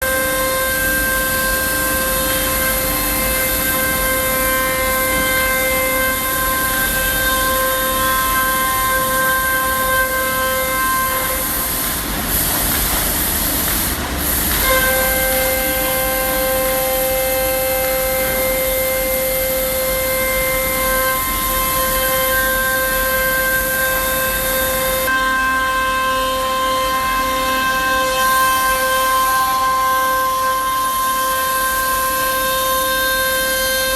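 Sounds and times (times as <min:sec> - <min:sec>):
router spindle high whine: 0:00.0 - 0:33.9.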